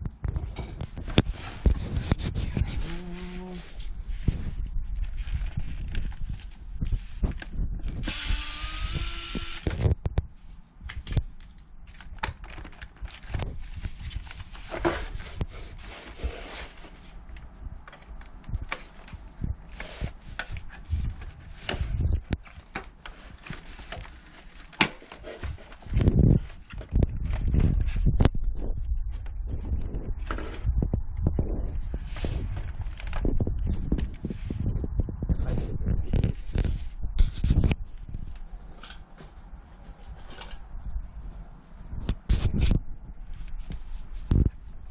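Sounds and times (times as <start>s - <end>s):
power drill whining: 8.0s - 9.7s.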